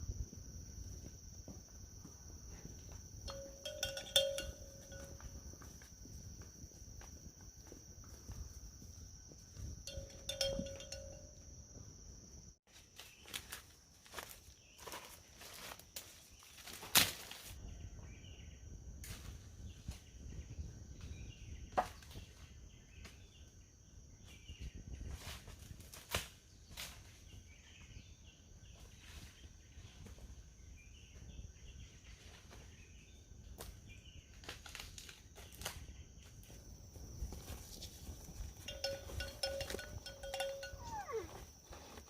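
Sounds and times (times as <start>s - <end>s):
faint chirps: 38.7s - 42.0s.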